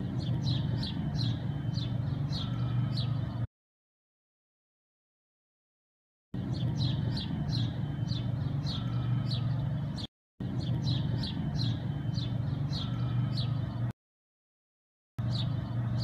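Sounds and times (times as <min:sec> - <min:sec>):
bird chirping: 0:00.0 - 0:03.5, 0:06.4 - 0:13.9, 0:15.2 - 0:16.0
steady low hum: 0:00.0 - 0:03.5, 0:06.4 - 0:13.9.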